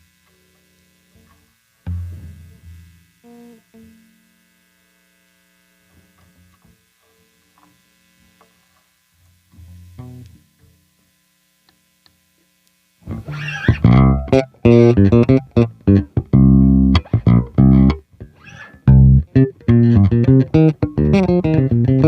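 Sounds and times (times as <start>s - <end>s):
faint electrical hum: 0.0s - 22.0s
electric bass plucked notes: 13.1s - 22.0s.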